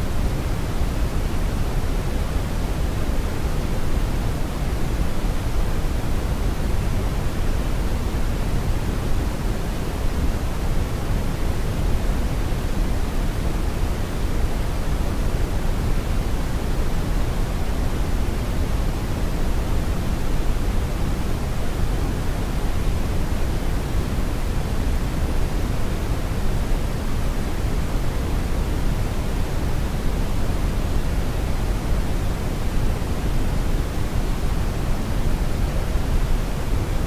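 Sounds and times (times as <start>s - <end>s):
brown noise rumbling hiss: 0.0s - 37.0s.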